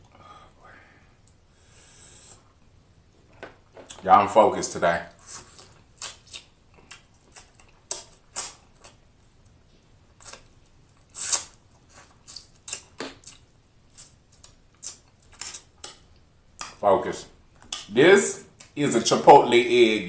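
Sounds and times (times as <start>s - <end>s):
chewing and lip-smacking: 5.4s - 16.8s.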